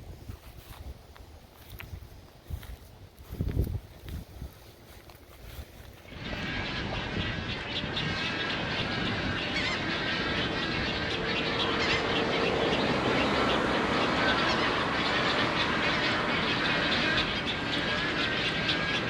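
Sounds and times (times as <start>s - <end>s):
steady low rumble: 0.0s - 19.0s
birds calling and chattering: 1.6s - 19.0s
steady drone: 5.9s - 19.0s
honking bird calls: 6.1s - 19.0s.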